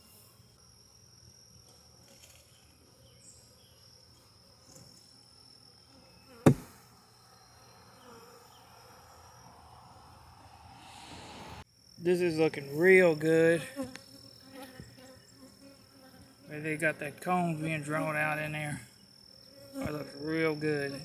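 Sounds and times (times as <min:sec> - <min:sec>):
high insect tone: 0:00.6 - 0:21.0
honeybees buzzing: 0:06.2 - 0:11.2
sharp knock: 0:06.5 - 0:06.8.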